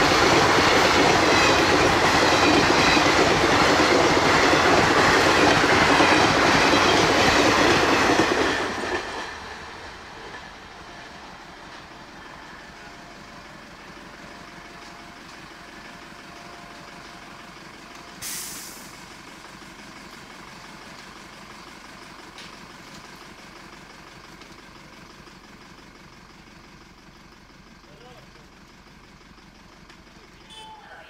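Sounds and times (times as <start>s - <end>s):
air brake hiss: 18.2s - 19.1s.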